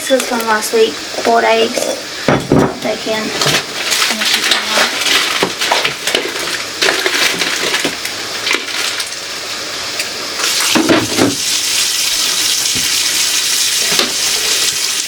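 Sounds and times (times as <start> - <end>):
food containers clattering: 3.3 - 9.1
tap water running into sink: 10.4 - 15.0.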